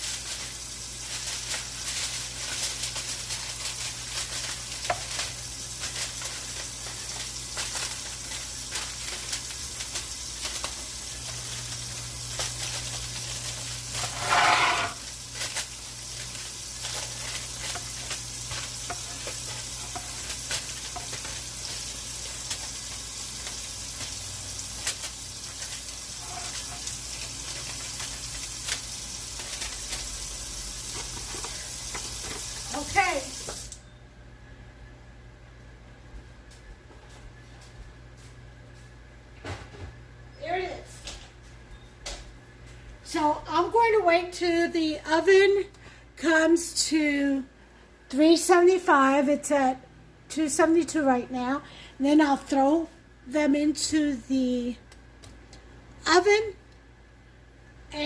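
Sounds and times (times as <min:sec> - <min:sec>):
sizzling crackle: 0:00.0 - 0:33.8.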